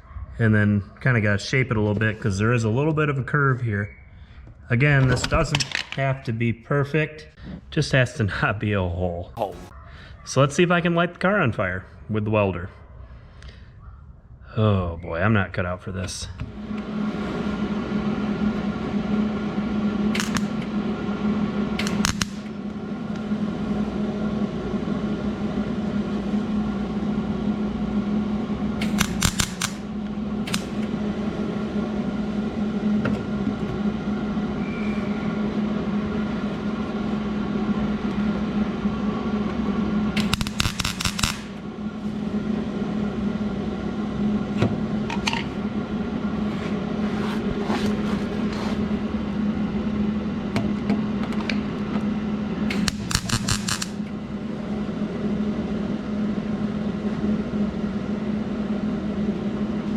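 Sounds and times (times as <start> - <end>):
welder buzzing and crackling: 20.1 - 20.6, 21.8 - 22.5, 28.8 - 30.9, 40.2 - 41.6, 52.7 - 54.1
sharp welding snaps: 20.2 - 20.6, 21.8 - 22.5, 28.8 - 29.9, 30.5 - 30.8, 40.2 - 41.6, 52.7 - 54.1.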